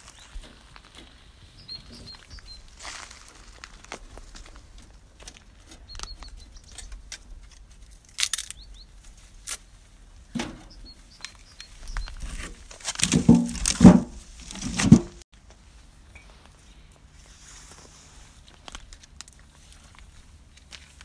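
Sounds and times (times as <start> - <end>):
hogs rooting and snuffling: 0.0 - 15.2
bird chirps: 1.6 - 2.7, 5.8 - 7.0, 10.6 - 12.2.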